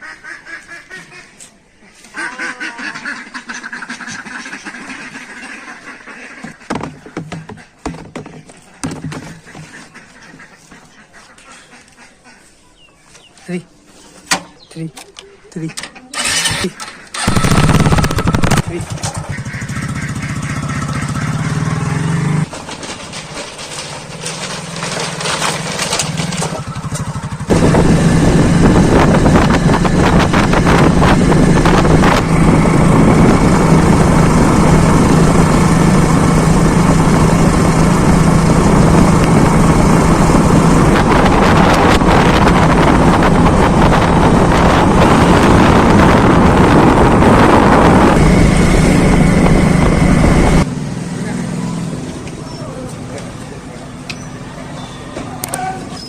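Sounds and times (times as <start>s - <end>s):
tractor diesel engine running: 16.2s - 55.6s.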